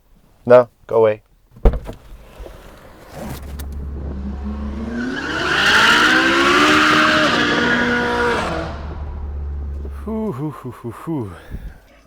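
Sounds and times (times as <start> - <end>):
sports car engine accelerating: 3.5 - 10.5.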